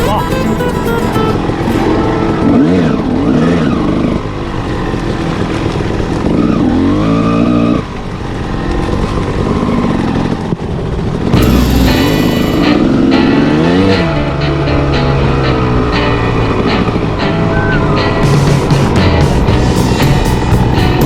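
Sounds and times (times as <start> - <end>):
two-stroke dirt bike engine revving: 1.3 - 14.2.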